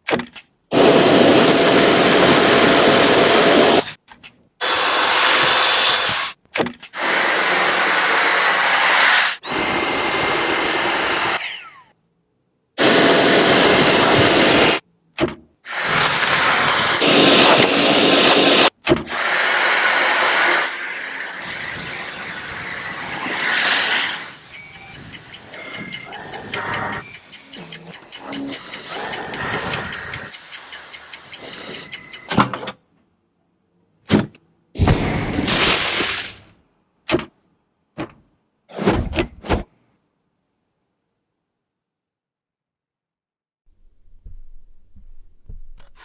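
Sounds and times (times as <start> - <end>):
stick vacuum cleaner running: 0.7 - 3.8, 7.0 - 11.8, 12.8 - 14.8, 15.7 - 24.4.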